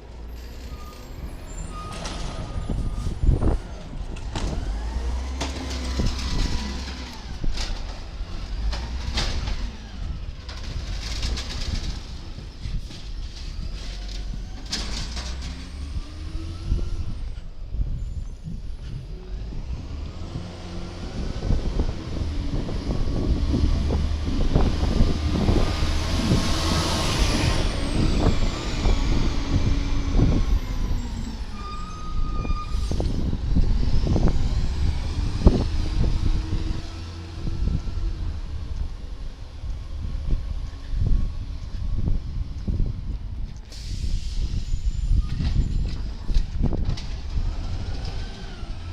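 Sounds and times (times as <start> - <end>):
garbage truck engine revving: 4.2 - 11.9, 19.2 - 39.1
air hiss: 43.7 - 44.7.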